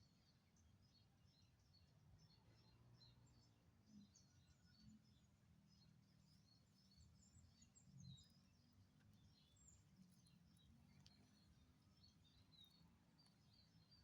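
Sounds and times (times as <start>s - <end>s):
small birds chirping: 1.7s - 14.0s.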